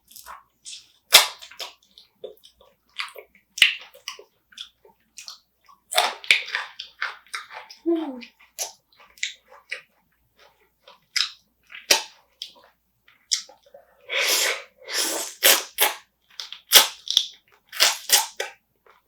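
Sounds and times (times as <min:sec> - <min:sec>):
chewing and crunching: 0:00.0 - 0:13.9, 0:15.4 - 0:19.0.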